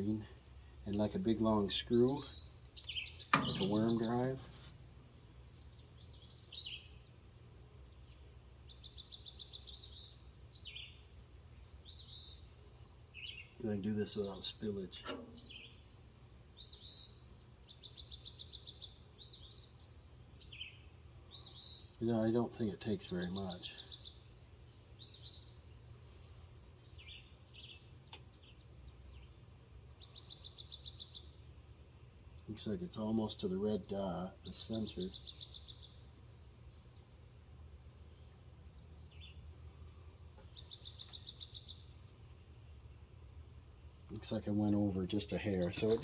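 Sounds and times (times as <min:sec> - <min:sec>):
songbirds chirping: 0:00.0 - 0:46.0
sharp click: 0:02.7 - 0:04.8, 0:15.0 - 0:15.6.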